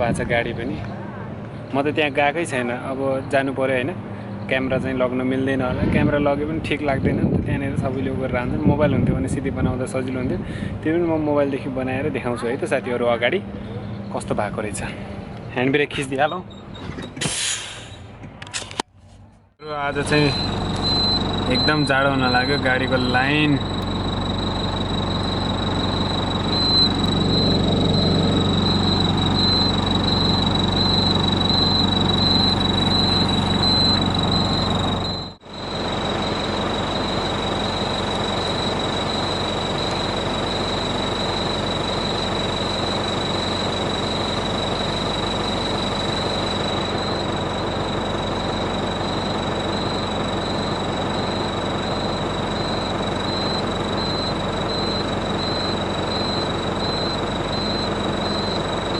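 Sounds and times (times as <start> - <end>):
truck engine running: 19.2 - 58.9
high whine: 19.6 - 58.9.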